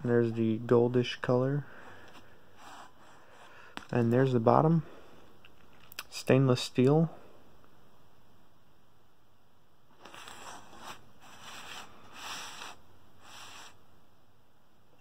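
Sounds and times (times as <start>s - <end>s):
faint rustling scrapes: 1.7s - 4.4s, 9.9s - 13.8s.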